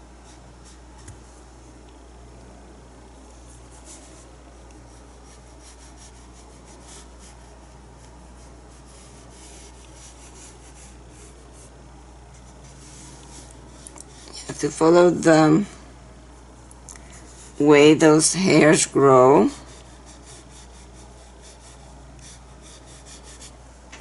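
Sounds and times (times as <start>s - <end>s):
paintbrush strokes on painting surface: 3.3s - 15.4s, 16.4s - 18.8s, 19.4s - 23.6s.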